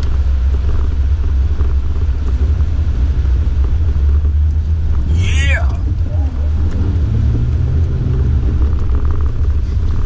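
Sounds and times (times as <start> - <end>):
vehicle driving through snow: 5.8 - 10.0.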